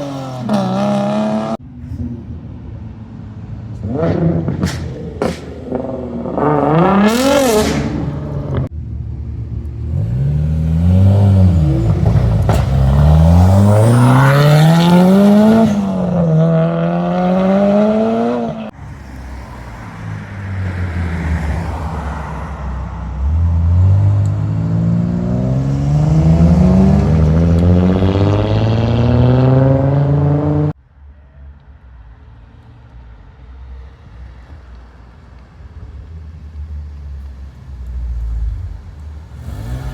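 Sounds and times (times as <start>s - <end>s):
car engines revving through gears: 0.0s - 2.1s, 3.7s - 8.7s, 9.6s - 18.8s, 19.8s - 30.8s, 37.7s - 39.9s.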